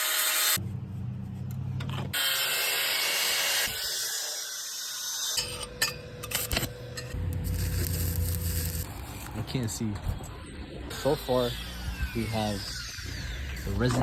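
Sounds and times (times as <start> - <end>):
power saw cutting metal pipe: 2.1 - 8.9, 10.9 - 14.0.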